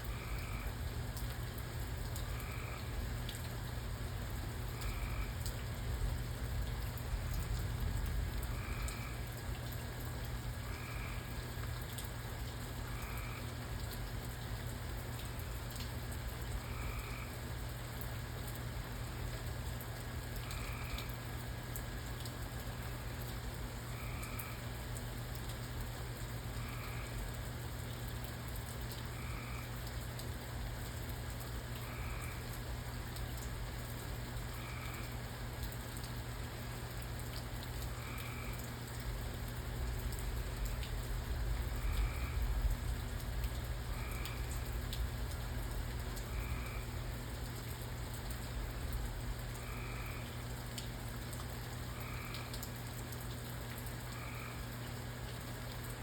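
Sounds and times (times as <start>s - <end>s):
frog croaking: 0.0s - 0.8s, 2.3s - 2.9s, 4.8s - 5.6s, 8.4s - 9.2s, 12.8s - 13.5s, 16.6s - 17.4s, 20.4s - 21.1s, 23.9s - 24.6s, 29.2s - 29.9s, 31.8s - 32.5s, 34.5s - 35.1s, 37.9s - 38.7s, 41.7s - 42.4s, 43.9s - 44.7s, 46.2s - 47.0s, 49.5s - 50.4s, 51.9s - 52.6s, 54.0s - 54.7s
rain hiss: 0.0s - 56.0s.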